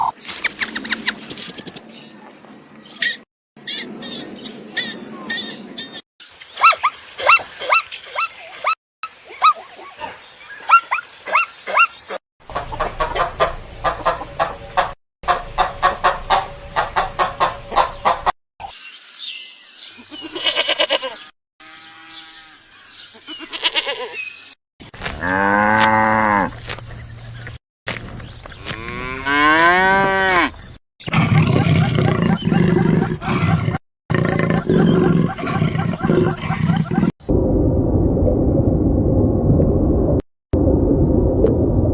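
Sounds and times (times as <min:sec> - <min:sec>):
fast repeated animal calls: 0:31.0 - 0:37.1
low dense animal call: 0:31.1 - 0:37.1.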